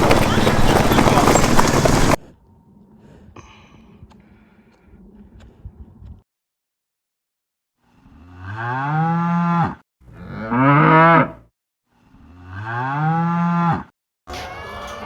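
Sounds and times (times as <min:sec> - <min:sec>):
cow mooing: 0:08.1 - 0:11.4, 0:12.2 - 0:13.9.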